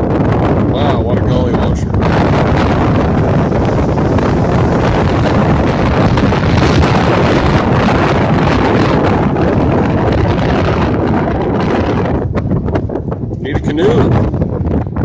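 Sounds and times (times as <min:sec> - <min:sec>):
wind buffeting microphone: 0:00.0 - 0:15.0
heavy rain: 0:00.7 - 0:13.1.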